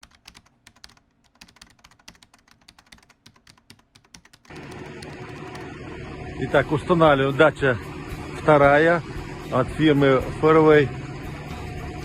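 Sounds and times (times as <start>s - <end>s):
keyboard typing clicks: 0.0s - 5.7s
steady noise: 4.5s - 12.0s.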